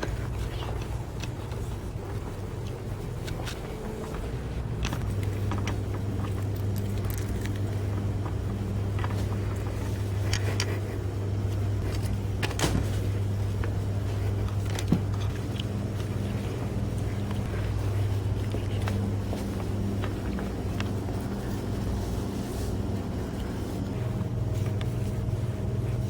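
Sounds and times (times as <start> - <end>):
small clicks and rattles: 2.5 - 10.9.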